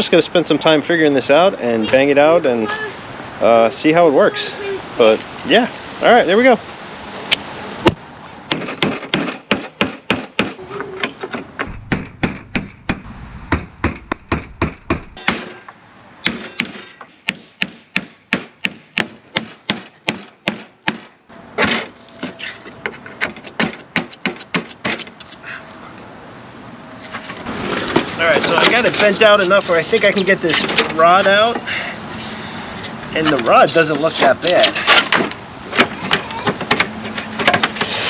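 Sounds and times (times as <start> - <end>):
hammer banging metal panel: 11.3 - 21.0.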